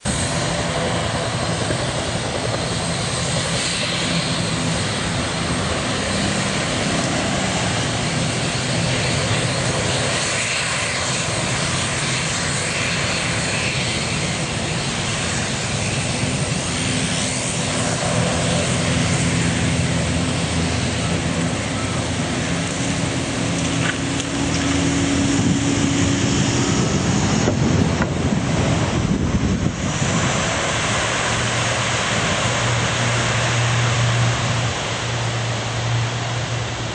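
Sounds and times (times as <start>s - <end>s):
airliner engines running: 0.0s - 36.9s.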